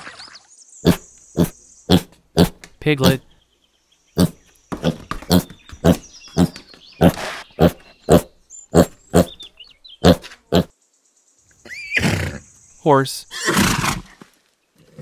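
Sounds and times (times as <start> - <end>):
pigs grunting: 0.8 - 3.3, 4.2 - 9.4, 10.0 - 10.7.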